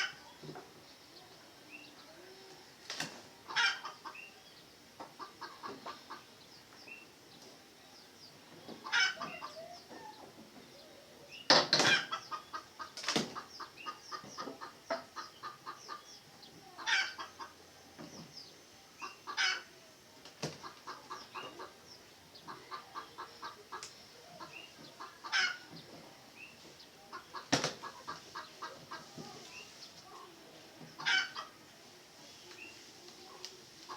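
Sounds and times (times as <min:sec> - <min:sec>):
junglefowl clucking: 0:03.4 - 0:04.3, 0:05.0 - 0:06.3, 0:08.7 - 0:10.3, 0:11.5 - 0:16.0, 0:16.7 - 0:17.6, 0:19.0 - 0:19.7, 0:20.5 - 0:21.8, 0:22.4 - 0:25.9, 0:27.1 - 0:30.2, 0:30.9 - 0:31.6.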